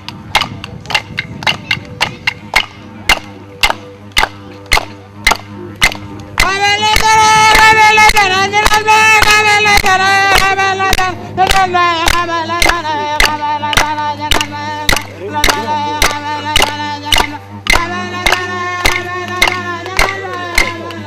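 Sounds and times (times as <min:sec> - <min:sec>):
sharp struck clicks: 0:00.0 - 0:21.0
person singing long notes: 0:05.5 - 0:21.0.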